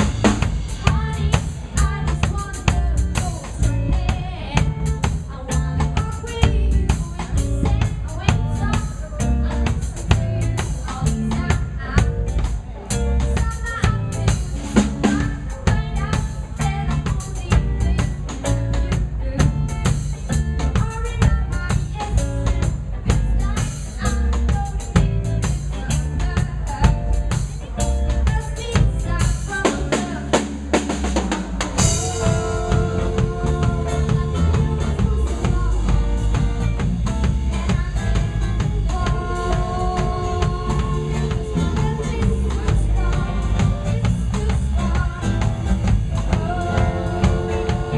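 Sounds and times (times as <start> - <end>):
drum fill: 0.0 - 47.9
live band playing: 0.0 - 47.9.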